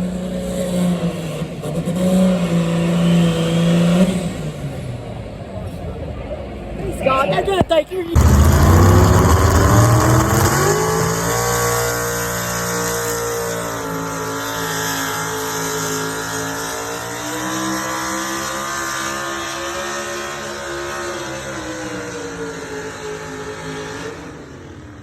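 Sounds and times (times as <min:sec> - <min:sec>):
truck engine revving high: 0:08.2 - 0:24.3.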